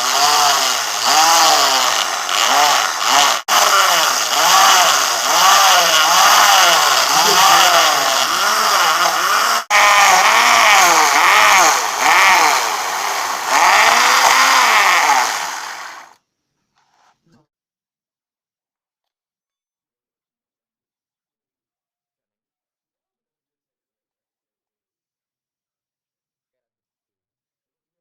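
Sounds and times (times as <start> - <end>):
electric motor driving lathe: 0.0 - 16.2.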